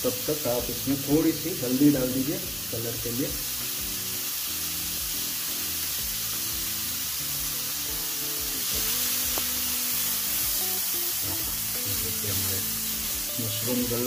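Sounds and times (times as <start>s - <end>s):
background music: 0.0s - 14.0s
mushrooms sizzling in oil: 0.0s - 14.0s.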